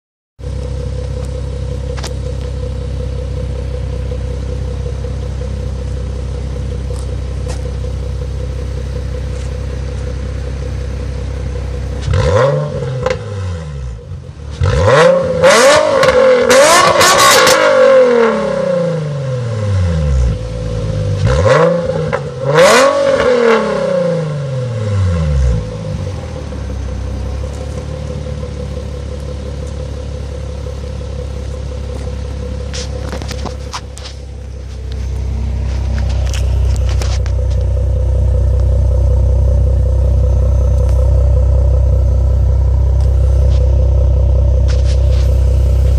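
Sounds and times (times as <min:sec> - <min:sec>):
car engine idling and revving: 0:00.4 - 0:45.9.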